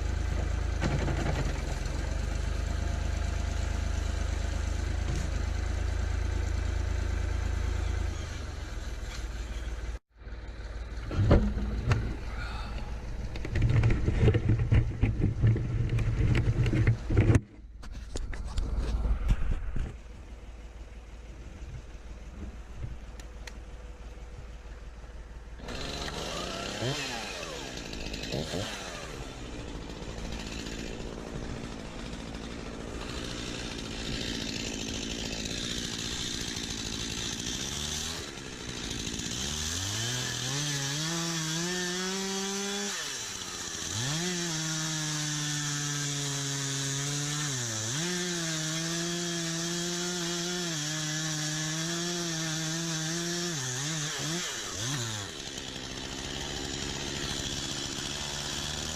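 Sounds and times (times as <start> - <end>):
chainsaw revving: 0.8 - 9.8, 25.6 - 58.9.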